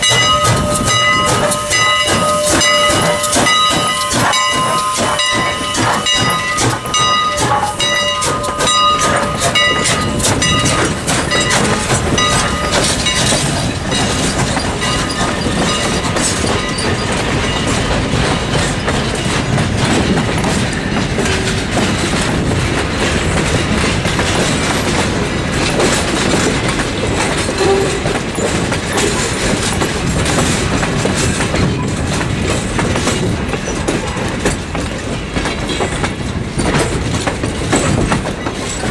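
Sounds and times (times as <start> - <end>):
steam whistle: 0.0 - 12.9, 27.6 - 28.2
train wheels clicking on rail joints: 0.0 - 38.9.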